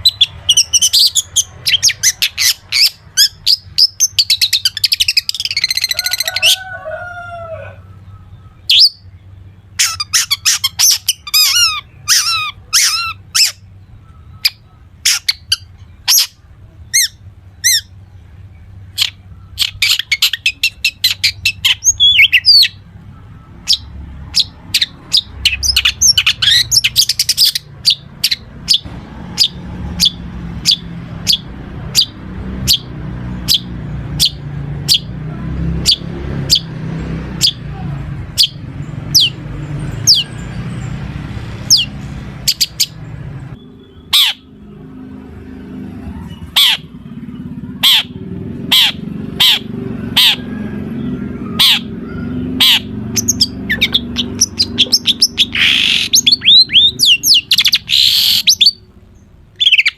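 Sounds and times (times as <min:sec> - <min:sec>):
shrike singing varied song: 0:00.0 - 0:59.9.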